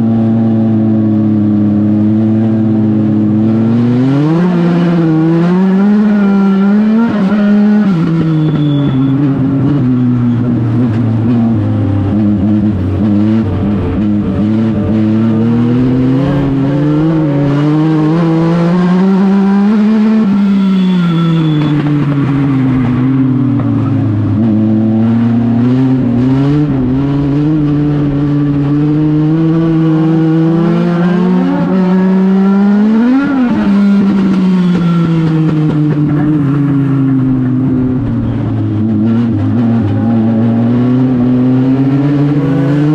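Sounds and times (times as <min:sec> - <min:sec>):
race car engine accelerating: 0:00.0 - 0:42.9.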